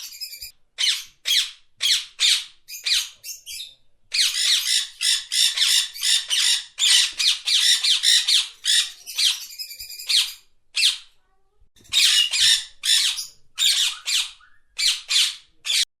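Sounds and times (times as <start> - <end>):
parakeet squawking: 0.0 - 11.1, 11.9 - 15.8.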